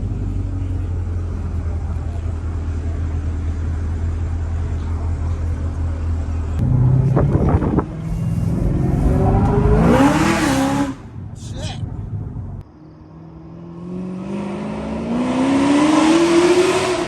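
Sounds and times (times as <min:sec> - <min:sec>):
car engine revving: 0:06.0 - 0:12.6, 0:13.2 - 0:17.0.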